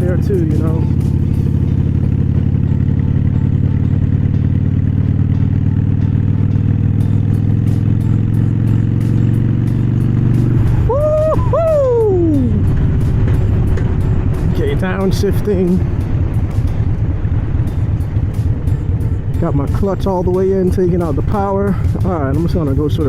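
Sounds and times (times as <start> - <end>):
motorcycle engine running: 0.0 - 23.0
high tone sliding down: 10.4 - 12.8.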